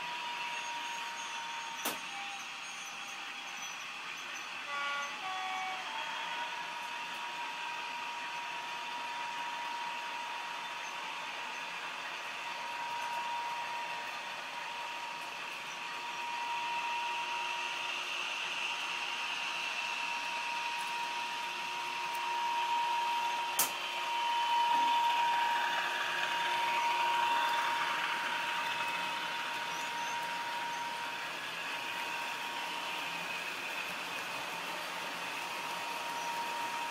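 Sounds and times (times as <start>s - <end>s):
model train diesel engine sound: 0.0s - 36.9s
steady high tone: 22.2s - 33.3s
sharp click: 23.6s - 23.8s.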